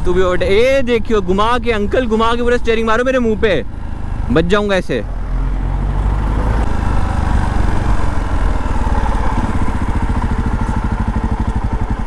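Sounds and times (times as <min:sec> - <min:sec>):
motorcycle engine running: 0:03.6 - 0:12.0.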